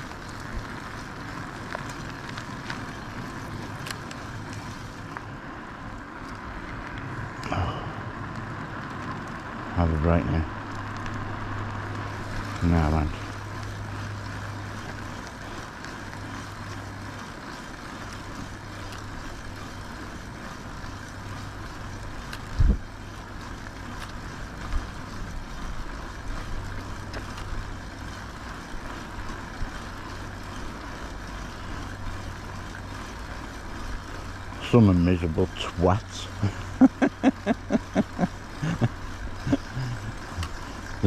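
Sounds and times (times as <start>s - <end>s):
steady low hum: 0.0s - 41.0s
wind and road rush: 0.0s - 41.0s.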